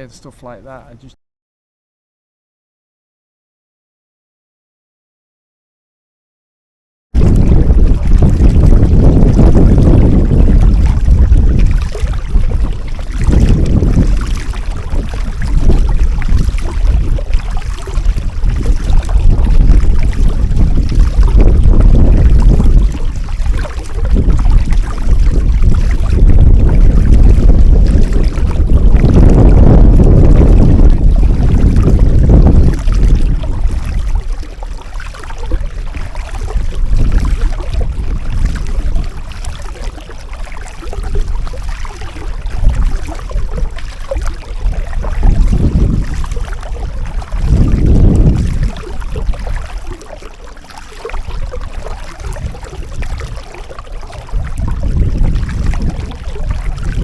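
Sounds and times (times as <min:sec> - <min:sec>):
wind buffeting microphone: 0:07.2 - 0:50.1, 0:51.0 - 0:57.0.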